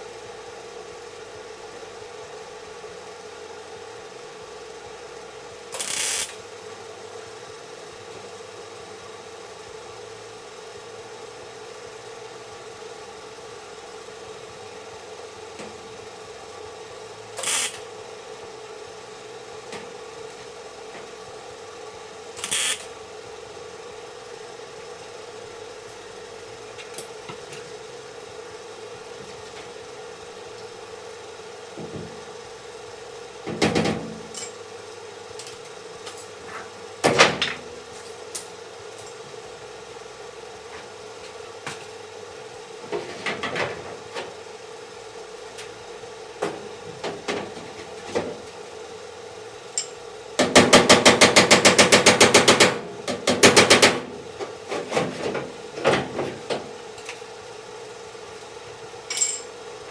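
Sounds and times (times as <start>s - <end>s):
hammer knocking on sheet metal: 50.4s - 54.1s.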